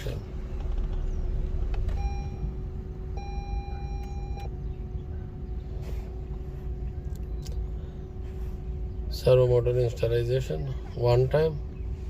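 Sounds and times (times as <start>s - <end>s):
low rumble: 0.0s - 9.2s
sharp clicks: 0.5s - 2.0s
electronic beeps: 2.0s - 2.5s, 3.2s - 4.5s.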